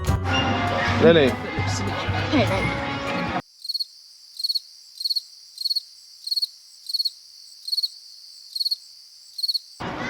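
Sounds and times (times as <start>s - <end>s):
cricket chirping: 3.4s - 9.8s.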